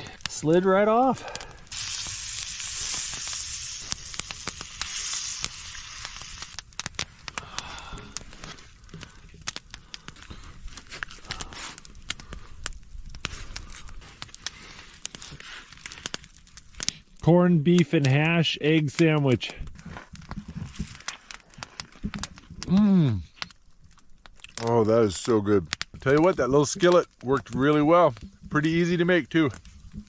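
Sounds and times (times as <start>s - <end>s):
pops and crackles: 0.0s - 30.0s
food sizzling in a skillet: 1.7s - 6.6s.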